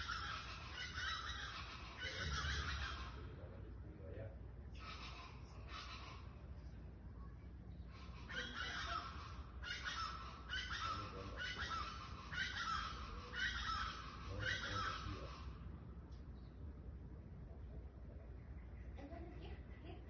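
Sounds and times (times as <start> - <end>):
bird harsh grating calls: 0.0 - 3.6, 4.7 - 6.6, 7.8 - 15.7.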